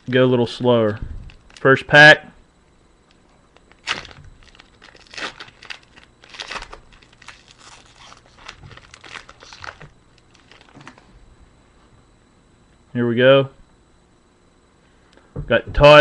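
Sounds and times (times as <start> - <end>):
wrapper crinkling and tearing: 3.6 - 11.0.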